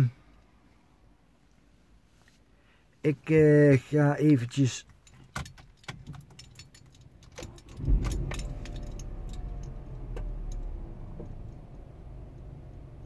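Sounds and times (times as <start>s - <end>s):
car keys jingling: 4.6s - 10.7s
car engine starting and idling: 5.5s - 13.0s.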